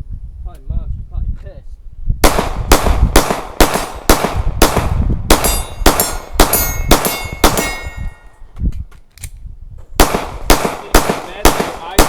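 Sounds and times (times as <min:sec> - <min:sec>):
gunshots: 0:02.2 - 0:08.2, 0:10.0 - 0:12.0
steel target clanging: 0:05.4 - 0:08.4.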